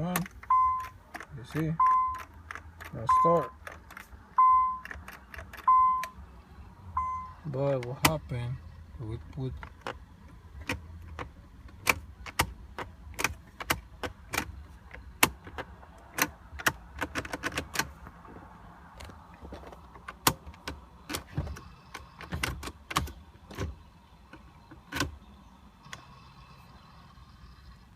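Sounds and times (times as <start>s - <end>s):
sharp clicks and light knocks: 0.0s - 4.1s
low steady hum: 0.0s - 27.9s.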